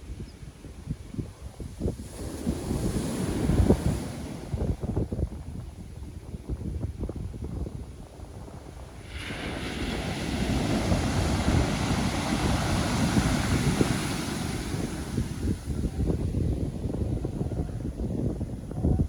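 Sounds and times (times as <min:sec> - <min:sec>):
wind rumbling on microphone: 0:00.0 - 0:19.0
ocean waves breaking: 0:08.4 - 0:17.1.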